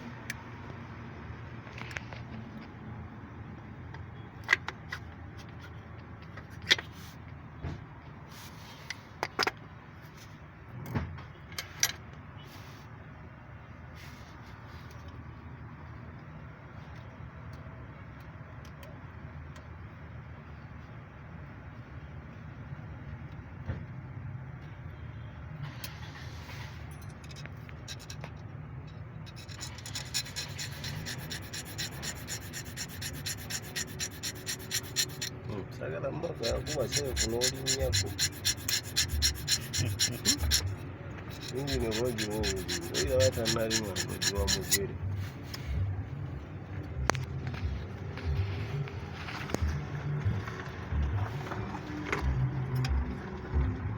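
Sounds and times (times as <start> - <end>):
fast even ticking: 29.3 - 35.3, 36.4 - 44.8.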